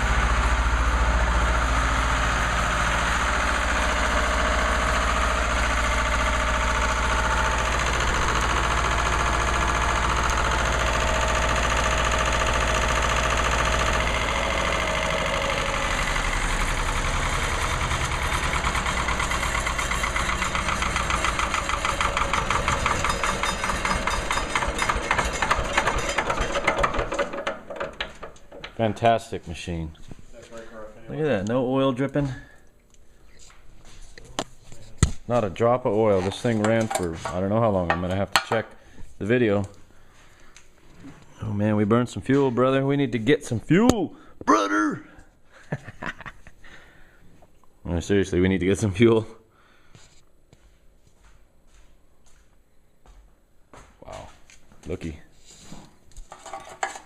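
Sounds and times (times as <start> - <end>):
generator engine running: 0.0 - 29.2.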